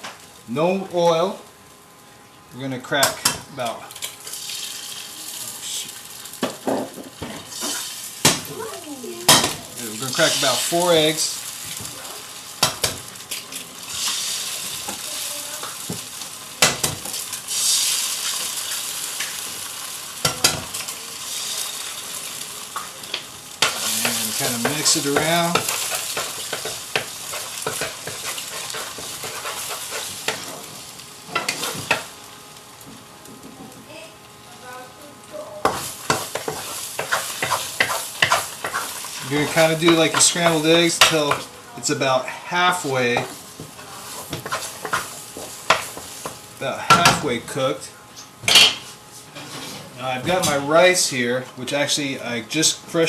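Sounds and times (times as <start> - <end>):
faint sizzle from hot pan: 0.0 - 53.0
utensil scraping a pan: 23.6 - 30.6, 35.7 - 41.4, 48.7 - 49.9.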